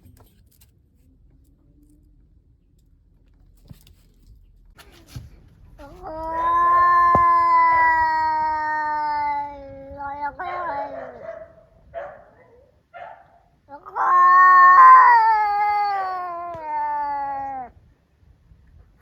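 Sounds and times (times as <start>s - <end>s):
cat yowling: 5.8s - 12.8s, 13.7s - 17.8s.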